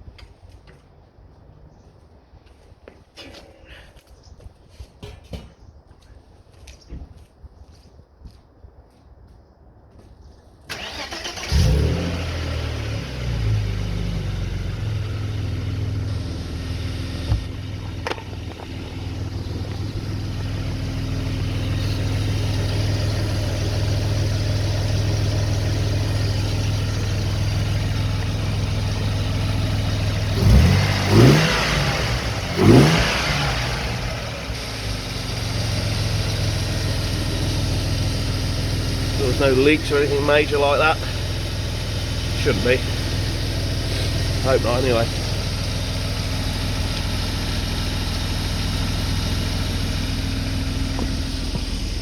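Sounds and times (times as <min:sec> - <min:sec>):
car engine starting and idling: 0:10.7 - 0:52.0
engine revving blips: 0:25.2 - 0:36.4.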